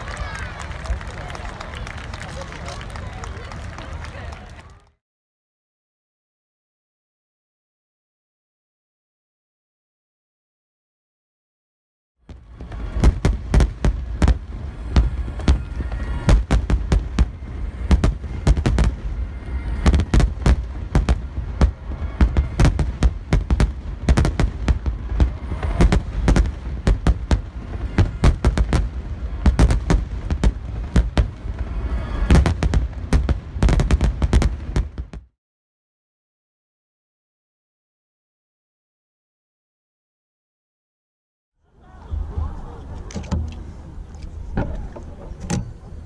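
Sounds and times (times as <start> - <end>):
fireworks booming: 12.2 - 35.3.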